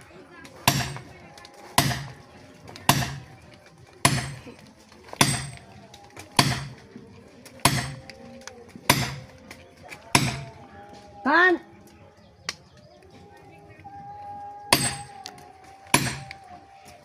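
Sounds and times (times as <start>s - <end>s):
heavy chopping strikes: 0.6s - 3.3s, 4.0s - 10.6s, 14.7s - 16.4s.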